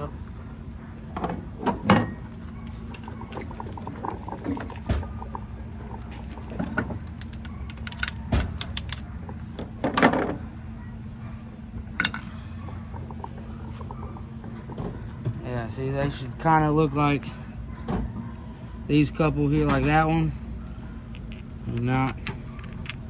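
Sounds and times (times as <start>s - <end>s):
steady low hum: 0.0s - 23.0s
metal parts clinking and knocking: 5.9s - 9.1s, 12.0s - 12.4s, 21.1s - 23.0s.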